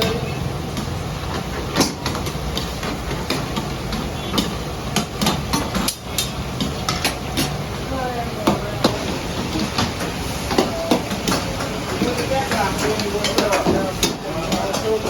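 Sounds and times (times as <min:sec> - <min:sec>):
sharp knocks and clatter: 0:00.7 - 0:07.6.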